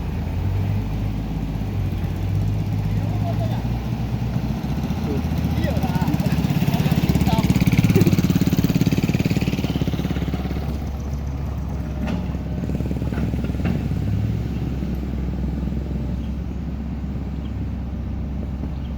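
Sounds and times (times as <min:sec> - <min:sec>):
heavy vehicle engine running: 0:00.0 - 0:18.9
faint clanks: 0:11.9 - 0:12.5.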